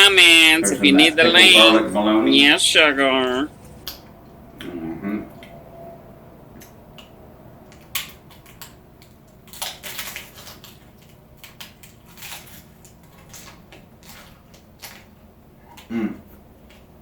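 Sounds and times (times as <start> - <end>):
crunchy food being chewed: 7.7 - 17.0.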